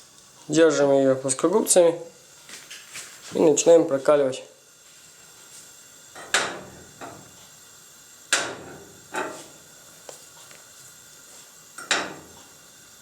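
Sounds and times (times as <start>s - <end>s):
sharp knocks: 8.3s - 9.4s.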